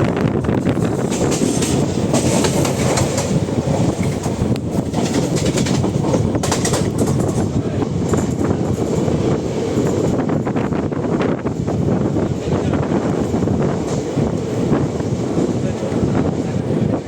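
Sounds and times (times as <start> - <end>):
train rumbling: 0.0 - 17.0
short clacks of train: 0.8 - 9.0.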